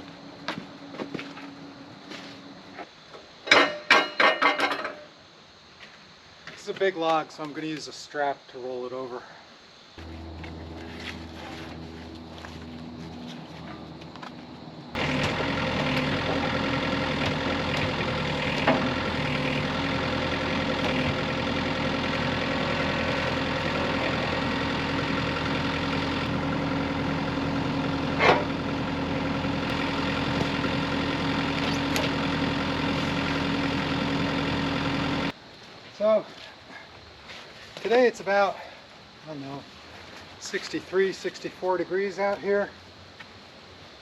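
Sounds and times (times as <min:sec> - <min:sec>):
engine idling: 0:10.0 - 0:35.3.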